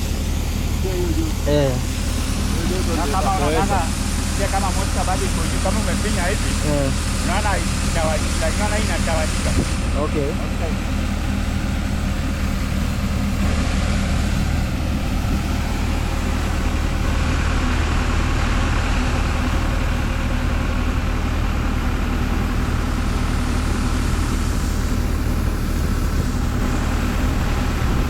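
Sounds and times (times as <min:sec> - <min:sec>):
large engine running steadily: 0:00.0 - 0:28.0.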